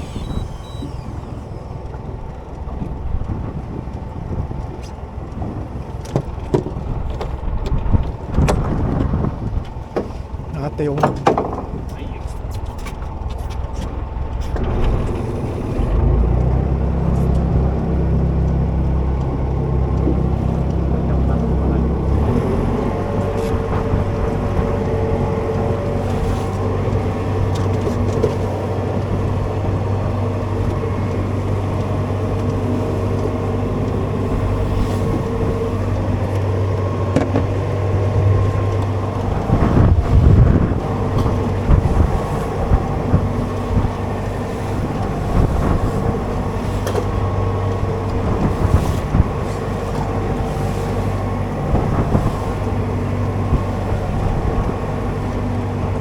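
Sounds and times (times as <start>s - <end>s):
small boat engine running: 0.0s - 56.0s
wind noise on microphone: 0.0s - 56.0s.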